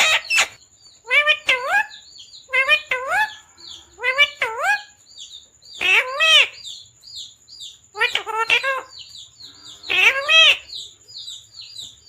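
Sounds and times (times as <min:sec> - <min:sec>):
parrot calling: 0:00.0 - 0:05.0, 0:05.8 - 0:06.9, 0:07.7 - 0:10.9
high parrot chirps: 0:00.0 - 0:12.0.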